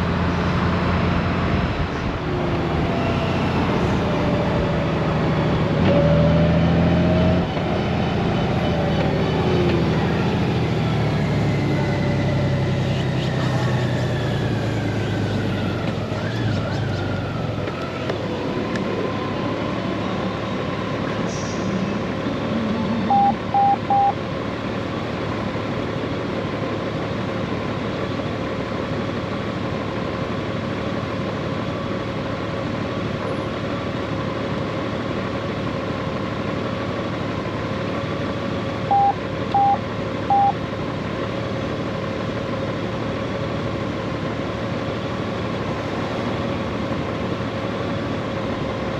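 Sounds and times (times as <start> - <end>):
wind and road noise: 0.0 - 48.9
short electronic beeps: 23.0 - 24.2, 38.9 - 40.6.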